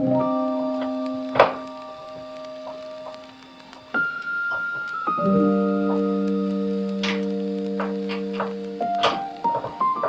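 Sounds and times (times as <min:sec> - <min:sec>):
held keyboard notes: 0:00.0 - 0:10.0.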